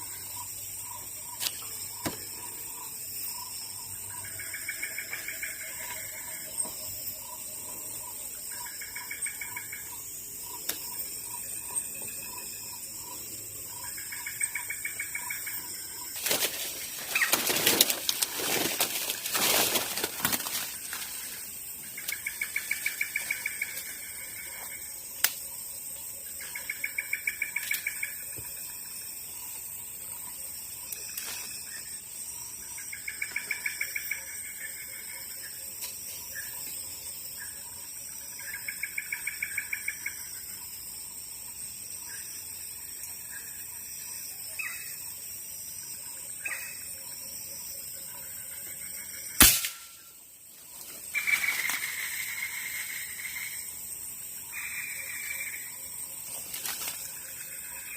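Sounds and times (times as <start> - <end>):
insects humming: 0.0 - 57.9
sharp crack: 49.4 - 50.0.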